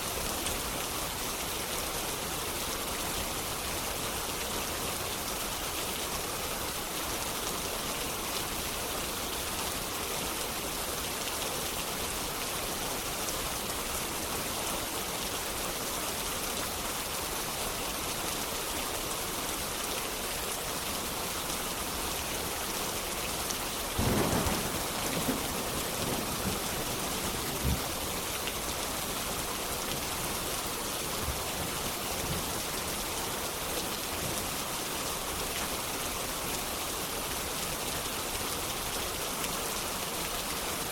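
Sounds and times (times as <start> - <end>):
steady rain: 0.0 - 40.9
thunder rumbling and cracking: 24.0 - 28.2.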